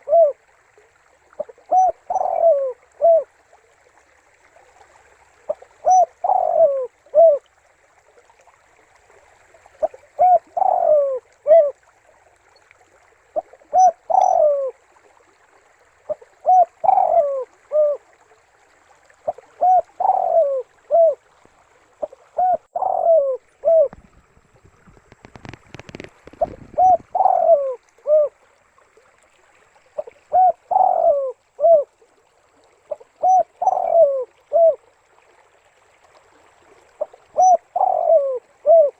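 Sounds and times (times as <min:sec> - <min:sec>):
dove cooing: 0:00.0 - 0:00.4, 0:01.4 - 0:03.3, 0:05.5 - 0:07.5, 0:09.8 - 0:11.8, 0:13.4 - 0:14.8, 0:16.1 - 0:18.0, 0:19.2 - 0:21.3, 0:22.0 - 0:24.2, 0:25.4 - 0:28.4, 0:30.0 - 0:31.9, 0:32.9 - 0:34.8, 0:37.0 - 0:38.9
muffled rustle or bump: 0:23.8 - 0:27.2.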